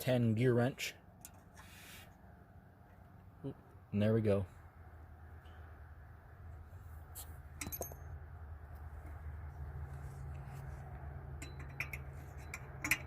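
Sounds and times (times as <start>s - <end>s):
steady low hum: 0.0s - 13.0s
metallic clinks of wrenches: 7.6s - 8.2s, 11.3s - 13.0s.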